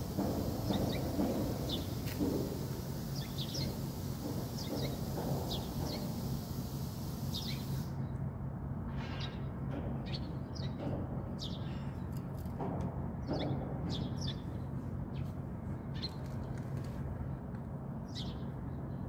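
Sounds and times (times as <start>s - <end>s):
small birds chirping: 0.0s - 7.9s
low background hum: 0.0s - 19.0s.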